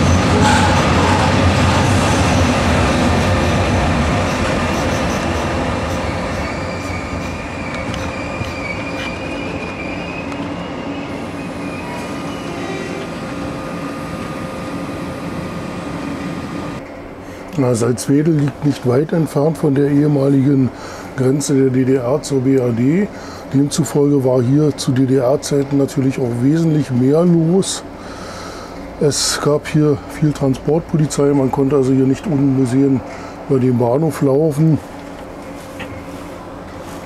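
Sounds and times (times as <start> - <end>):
high wheel squeal: 0.0 - 2.6, 4.2 - 14.1
passenger train rolling: 0.0 - 37.0.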